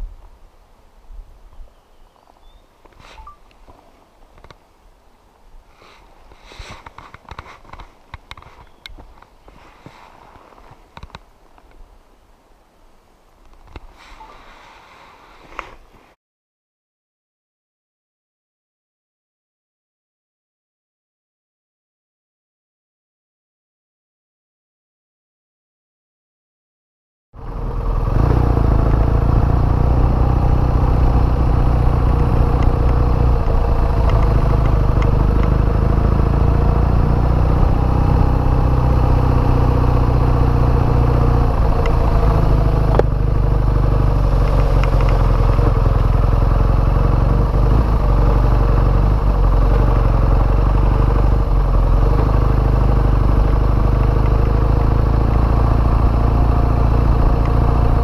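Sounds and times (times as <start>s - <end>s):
motorcycle engine running: 27.4s - 58.0s.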